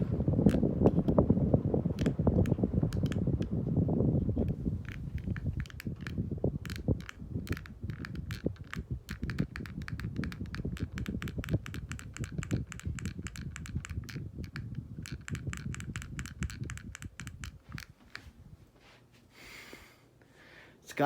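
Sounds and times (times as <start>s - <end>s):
ceiling fan low rumble: 0.0s - 21.0s
crackling clicks: 1.9s - 3.5s, 4.4s - 18.3s.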